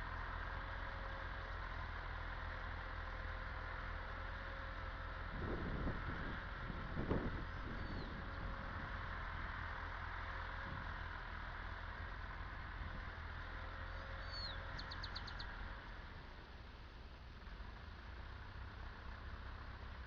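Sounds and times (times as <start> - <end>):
tractor diesel engine running: 0.0 - 20.0
bird descending call and trill: 14.2 - 15.5.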